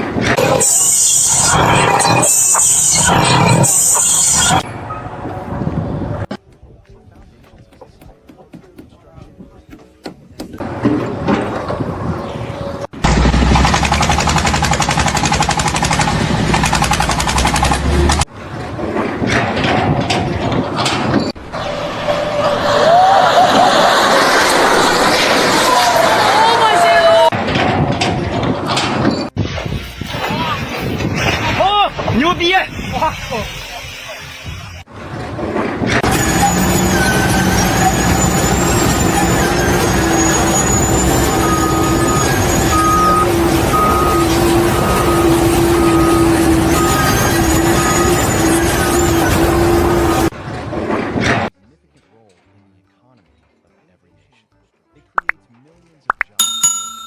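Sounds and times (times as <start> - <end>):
heavy machine running: 10.6 - 20.9
jackhammer hammering: 13.0 - 17.9
reversing alarm beeping: 38.2 - 49.2.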